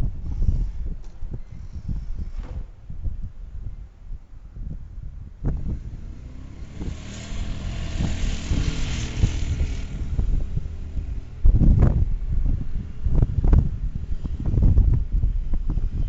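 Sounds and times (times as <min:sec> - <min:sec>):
wind buffeting microphone: 0:00.0 - 0:16.0
vehicle engine passing: 0:05.5 - 0:15.0.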